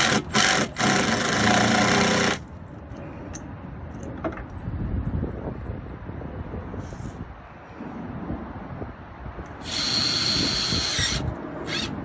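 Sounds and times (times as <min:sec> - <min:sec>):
power drill driving screw: 0:00.0 - 0:02.4, 0:09.6 - 0:12.0.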